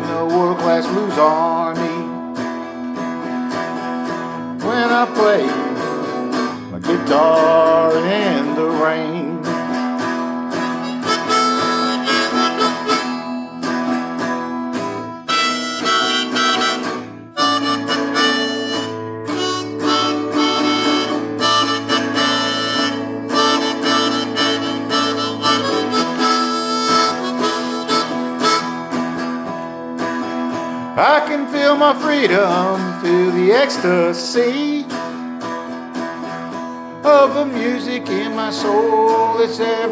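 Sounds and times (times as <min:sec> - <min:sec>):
guitar accompaniment: 0:00.0 - 0:39.9
blues harmonica solo: 0:10.5 - 0:14.2, 0:14.8 - 0:29.6.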